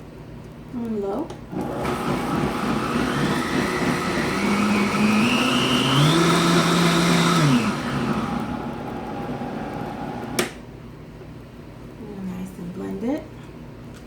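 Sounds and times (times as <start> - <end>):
blender running: 1.5 - 10.5.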